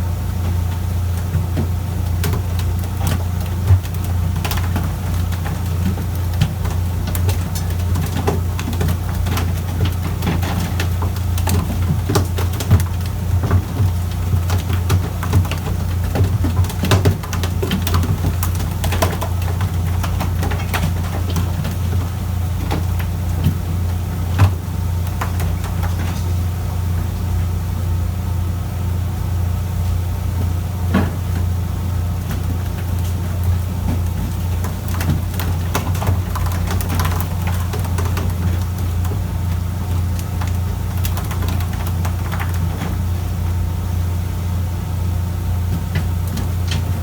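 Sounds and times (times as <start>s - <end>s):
sharp knocks and clicks: 32.2s - 43.0s.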